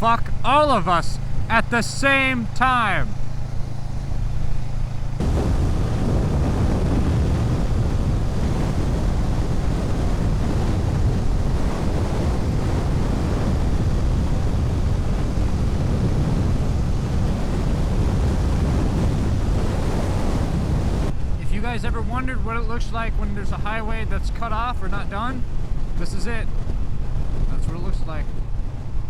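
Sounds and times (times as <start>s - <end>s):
wind rushing over microphone: 0.0s - 29.0s
motorcycle engine: 0.3s - 21.3s, 28.2s - 29.0s.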